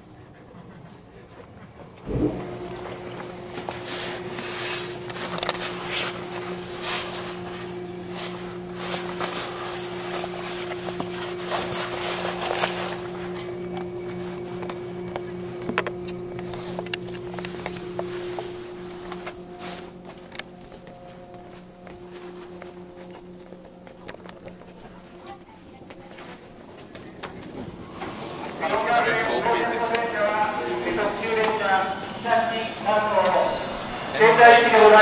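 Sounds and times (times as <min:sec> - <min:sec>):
train cabin low hum: 0:00.0 - 0:35.0
wheel rumble clicks and rattles: 0:02.0 - 0:22.0.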